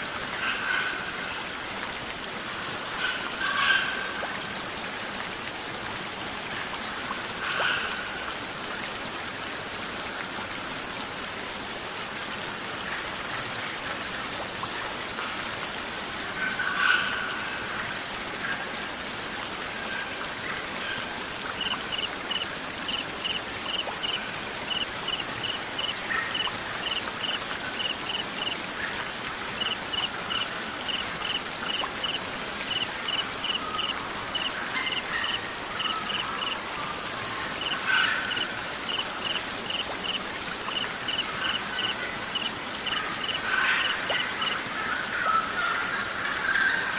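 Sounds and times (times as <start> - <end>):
water trickling: 17.2 - 46.4
cricket chirping: 21.6 - 28.6, 29.6 - 36.6, 37.6 - 44.6
songbird calls: 21.6 - 28.6, 29.6 - 36.6, 37.6 - 44.6.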